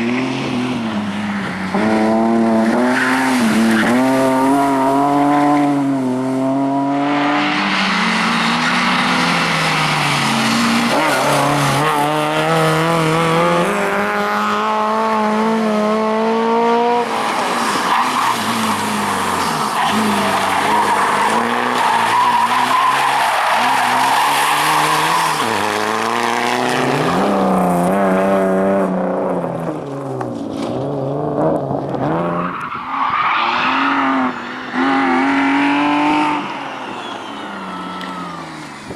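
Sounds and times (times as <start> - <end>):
rally car engine revving: 0.0 - 32.6
tyre squeal: 17.6 - 25.6, 36.4 - 38.7.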